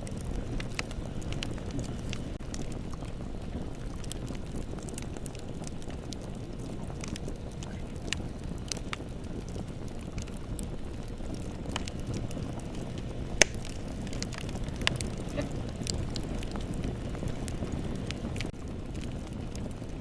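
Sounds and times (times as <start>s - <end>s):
bonfire crackling: 0.0s - 20.0s
loud fire pop: 13.3s - 16.6s.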